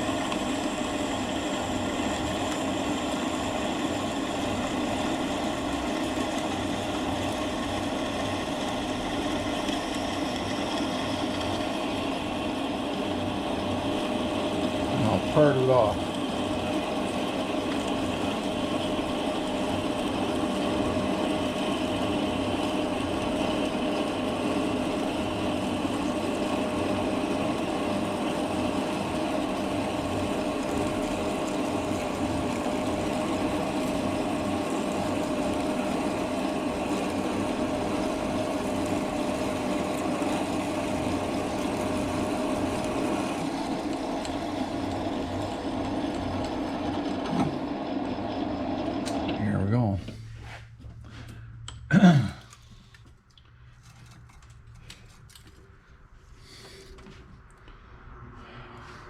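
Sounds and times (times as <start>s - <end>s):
metal lathe whining: 0.0s - 50.2s.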